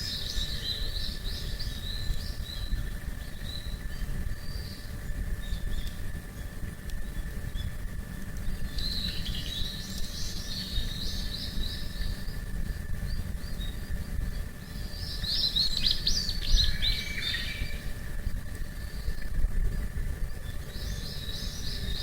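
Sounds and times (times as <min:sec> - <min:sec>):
songbird chittering: 0:00.0 - 0:06.5, 0:08.6 - 0:17.9, 0:20.3 - 0:22.0
low steady rumble: 0:00.0 - 0:22.0.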